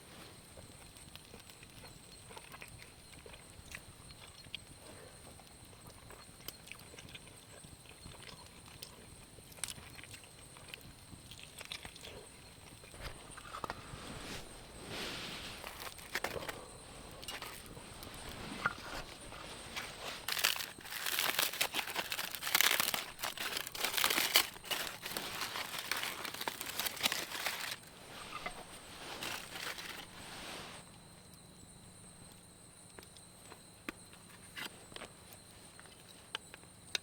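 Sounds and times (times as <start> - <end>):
rustling and crinkling: 10.6 - 31.0.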